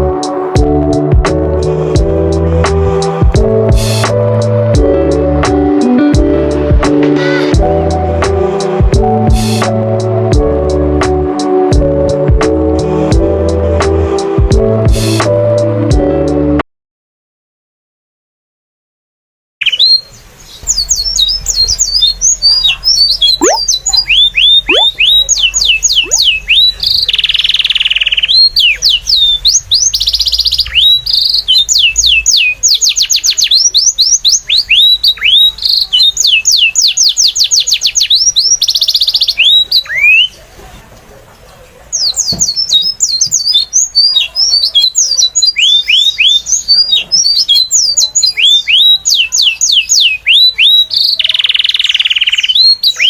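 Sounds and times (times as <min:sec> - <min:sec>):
songbird singing: 0:19.6 - 0:40.5, 0:41.4 - 0:53.0.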